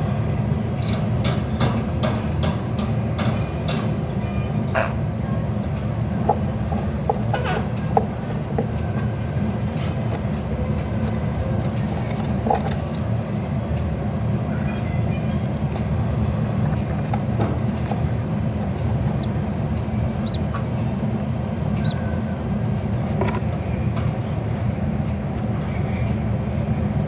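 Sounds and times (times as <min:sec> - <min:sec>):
steady low hum: 0:02.6 - 0:27.0
bird chirps: 0:19.1 - 0:19.4, 0:20.2 - 0:20.5, 0:21.8 - 0:22.0.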